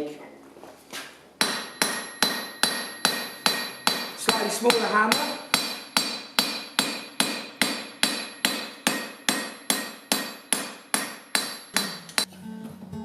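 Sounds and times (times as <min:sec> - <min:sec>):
hammer striking steel on anvil: 0:01.4 - 0:12.3
background music: 0:11.8 - 0:13.0.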